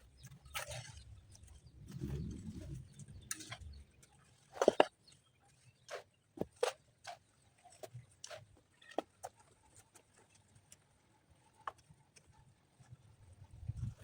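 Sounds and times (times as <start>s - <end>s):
low rumble: 1.7s - 3.9s.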